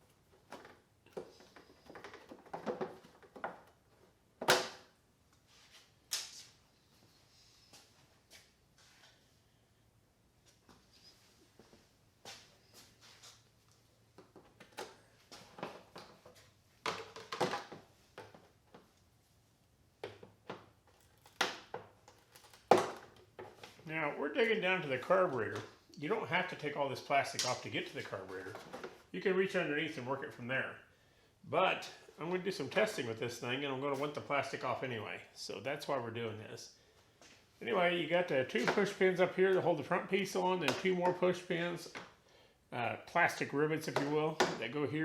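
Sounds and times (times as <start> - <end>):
tools and parts clicking and rattling: 20.0 - 23.8.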